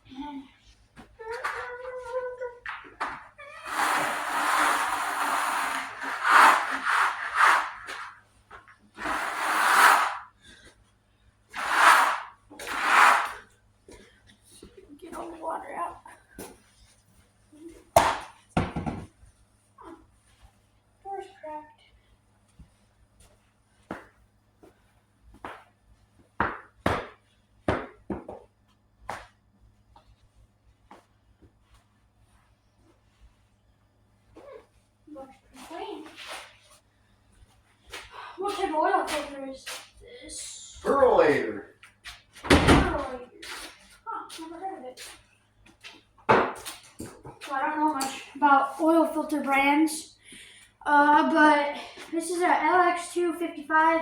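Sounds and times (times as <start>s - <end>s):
rough scraping strokes: 3.6s - 8.2s, 9.0s - 10.3s, 11.5s - 13.4s
knocks and clunks of hard objects: 18.0s - 19.2s, 46.3s - 47.4s.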